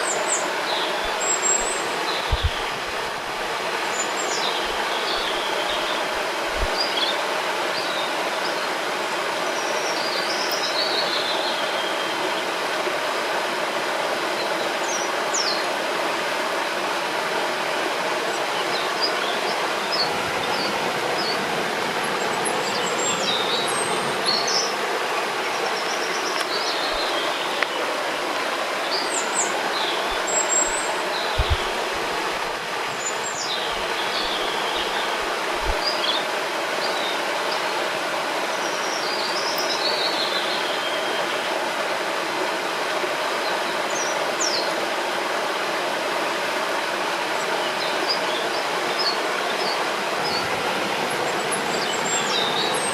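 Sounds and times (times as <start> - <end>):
small birds chirping: 0.0 - 3.2, 3.8 - 7.2, 22.0 - 24.8, 28.8 - 37.6, 47.4 - 52.9
river flowing: 0.0 - 52.9.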